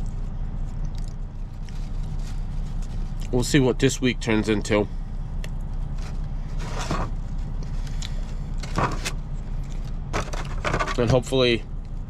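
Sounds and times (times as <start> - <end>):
truck engine idling: 0.0 - 12.0
rustling or breathing: 1.6 - 3.2, 6.0 - 8.7.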